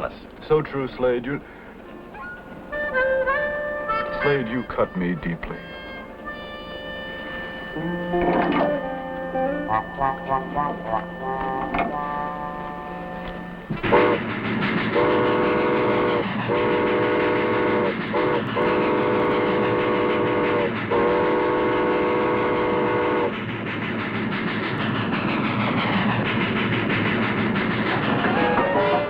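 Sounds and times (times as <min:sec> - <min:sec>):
train rumbling and clattering: 0:00.0 - 0:29.0
steam locomotive whistle: 0:01.8 - 0:23.5, 0:27.6 - 0:29.0.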